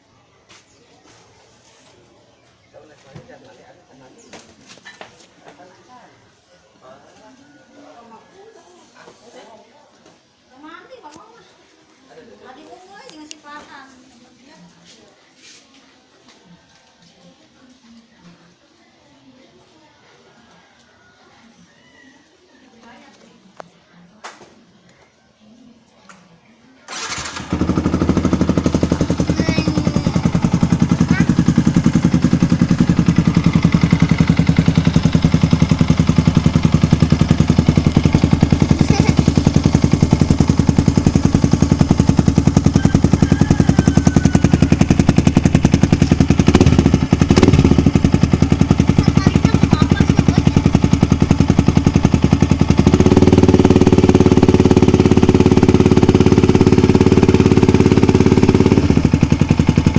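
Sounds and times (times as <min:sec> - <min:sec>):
motorcycle engine idling: 0:26.9 - 0:59.9.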